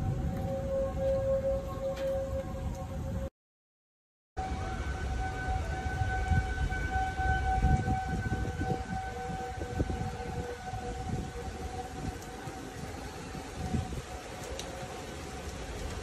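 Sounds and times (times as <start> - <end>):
low rumbling noise: 0.0 - 3.3
tornado warning siren: 0.0 - 3.3, 4.4 - 16.0.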